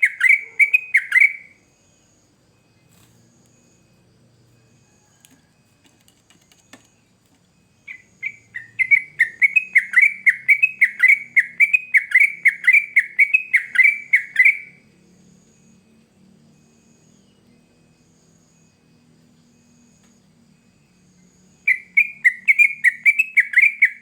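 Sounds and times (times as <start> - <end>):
bird bubbling chirping song: 7.8 - 14.6.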